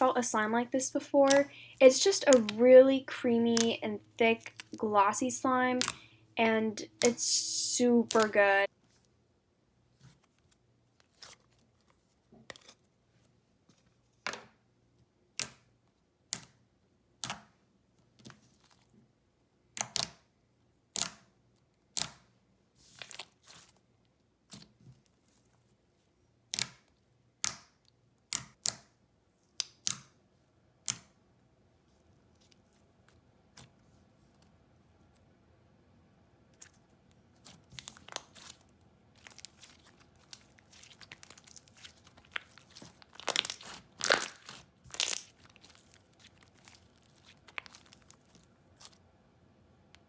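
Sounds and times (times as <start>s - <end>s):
slime clicking and popping: 1.3s - 1.5s, 40.8s - 48.3s.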